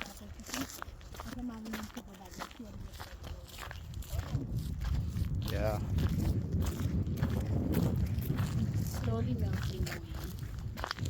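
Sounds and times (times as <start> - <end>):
footsteps on a trail: 0.0 - 11.0
low rumble: 3.8 - 11.0.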